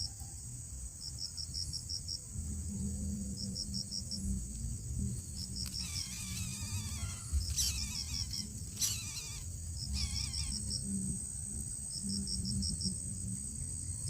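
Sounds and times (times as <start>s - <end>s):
crickets chirping: 0.0s - 14.0s
high insect drone: 0.0s - 14.0s
wavering animal call: 5.8s - 10.8s.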